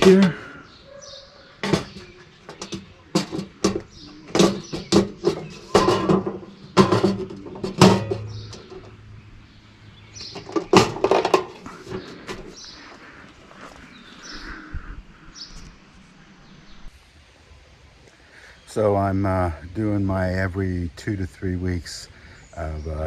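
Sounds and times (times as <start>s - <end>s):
hard parts knocking and clattering: 0.0s - 0.6s, 1.6s - 13.4s.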